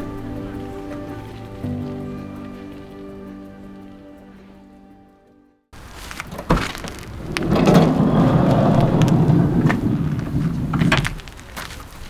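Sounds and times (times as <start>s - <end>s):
heavy rain falling: 5.8s - 12.0s
loud low rumbling wash: 6.8s - 11.6s.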